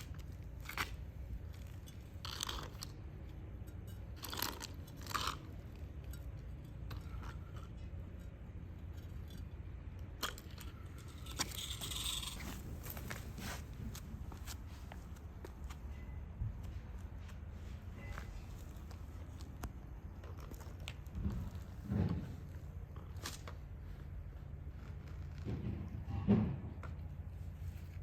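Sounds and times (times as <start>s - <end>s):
steady low rumble: 0.0s - 28.0s
rustling: 11.2s - 15.9s.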